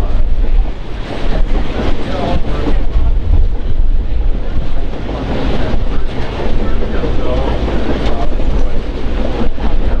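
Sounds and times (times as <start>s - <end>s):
moving train rumble: 0.0s - 10.0s
wind buffeting microphone: 0.0s - 10.0s.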